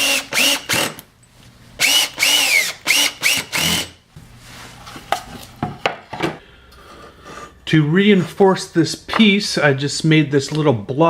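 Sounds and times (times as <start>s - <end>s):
power drill driving screws into wood: 0.0s - 1.0s, 1.8s - 4.0s.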